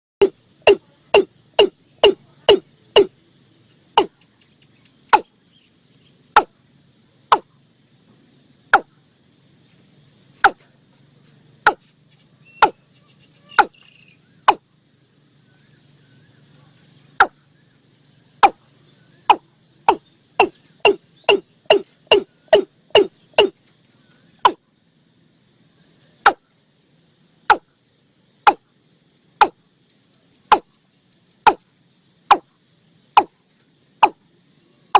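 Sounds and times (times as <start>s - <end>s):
bird calling hollow notes: 0.2s - 3.2s, 4.0s - 4.3s, 6.3s - 6.6s, 7.3s - 7.6s, 8.7s - 9.0s, 10.4s - 10.7s, 12.4s - 14.7s, 17.2s - 17.4s, 18.4s - 23.6s, 24.4s - 24.6s, 26.2s - 26.5s, 27.5s - 27.7s, 28.5s - 28.7s, 29.4s - 29.6s, 30.5s - 30.8s, 32.3s - 32.5s, 33.2s - 33.4s.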